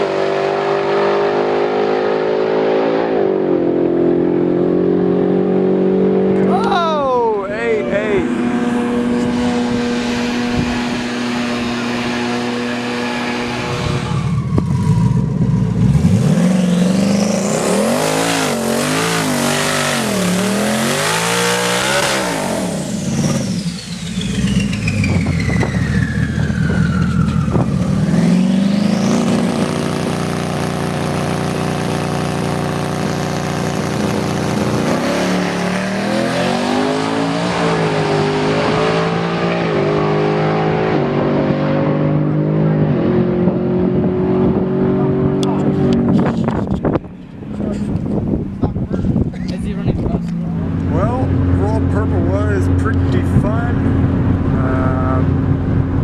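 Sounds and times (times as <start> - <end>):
drag car engine revving: 0.0 - 6.8, 7.5 - 56.0.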